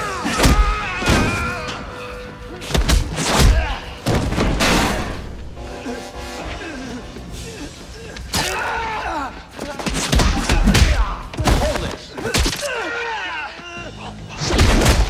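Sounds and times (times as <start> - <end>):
background music: 0.0 - 15.0
punch and kick impacts: 14.5 - 15.0.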